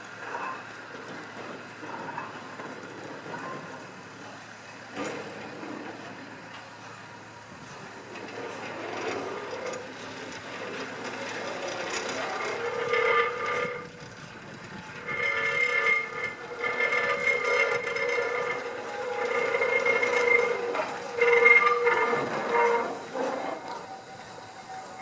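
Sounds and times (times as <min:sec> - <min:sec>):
steam locomotive running: 0:00.0 - 0:25.0
steam whistle blasts: 0:15.0 - 0:25.0.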